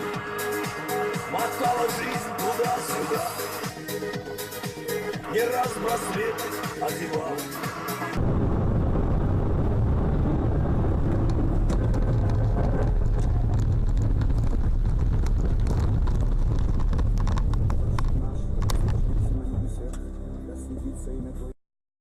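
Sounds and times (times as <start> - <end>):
car road and engine rumble: 8.2 - 21.5.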